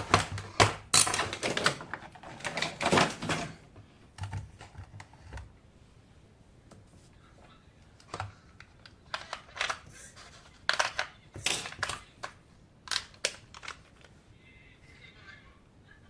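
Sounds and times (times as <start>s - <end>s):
plastic packaging clicks and taps: 10.7s - 14.1s.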